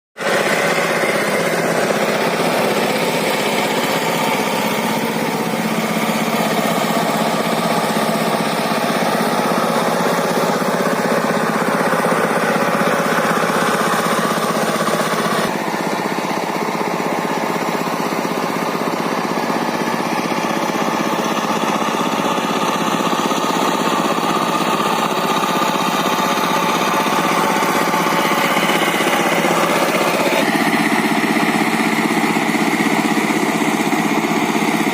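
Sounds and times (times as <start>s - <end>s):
small diesel tractor engine: 0.2s - 34.9s.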